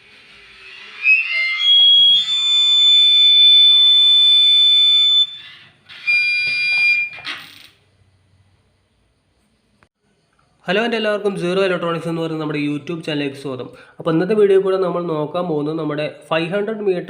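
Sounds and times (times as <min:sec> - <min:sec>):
high-pitched whistling from speaker: 0:00.0 - 0:07.4.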